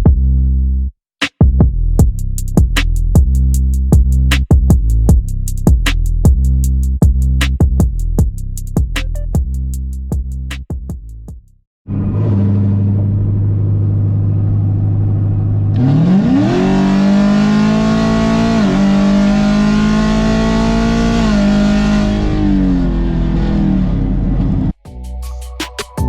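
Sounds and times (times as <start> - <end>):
car engine accelerating: 11.9 - 24.8.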